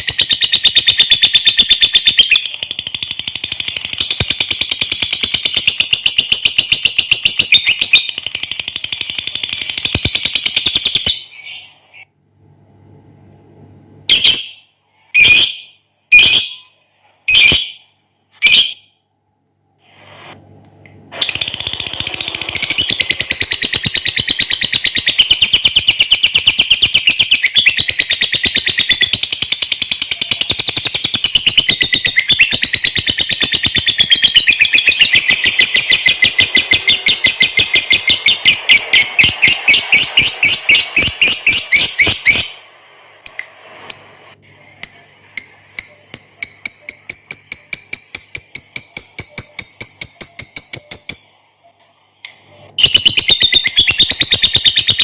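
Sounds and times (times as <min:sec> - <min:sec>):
lovebird chattering trill: 0:21.2 - 0:42.6, 0:43.3 - 0:51.3.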